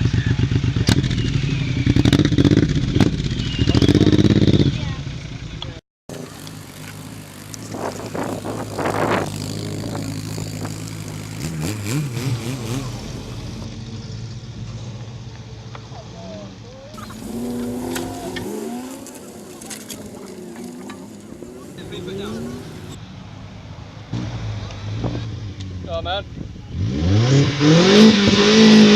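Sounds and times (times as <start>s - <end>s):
people talking: 4.6s - 6.6s, 15.8s - 23.0s, 25.8s - 26.8s
car engine running at low revs: 4.7s - 23.0s.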